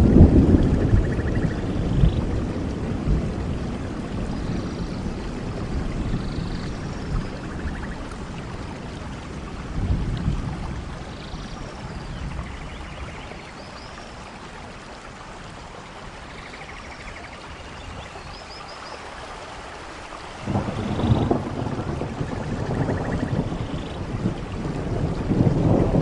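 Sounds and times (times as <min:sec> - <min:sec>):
thunder rumbling: 0:00.0 - 0:13.4, 0:20.4 - 0:26.0
steady rain: 0:00.0 - 0:26.0.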